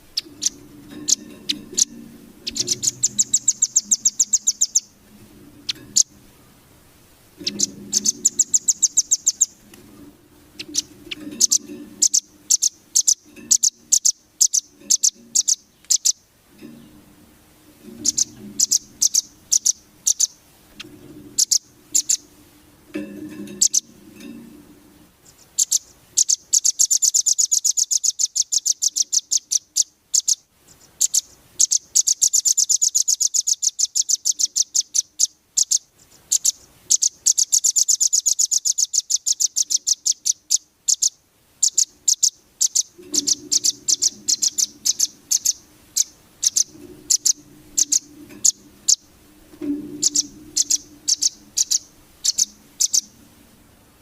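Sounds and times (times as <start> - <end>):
bird calling with high chips: 0.0 - 5.0, 7.4 - 9.6, 10.6 - 16.8, 17.9 - 22.3, 23.5 - 23.9, 25.2 - 49.2, 49.8 - 53.2
fast bird trill: 0.0 - 5.0, 7.4 - 9.6, 10.6 - 16.2, 18.0 - 20.4, 21.4 - 22.3, 23.6 - 23.9, 25.4 - 49.1, 49.9 - 53.2
faint low rumble: 0.0 - 12.8, 43.0 - 54.0.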